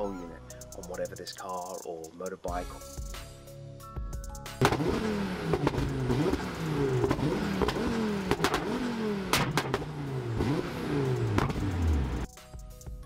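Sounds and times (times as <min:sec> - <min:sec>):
car engine revving in bursts: 0:04.6 - 0:12.3
sharp exhaust cracks: 0:04.6 - 0:12.3.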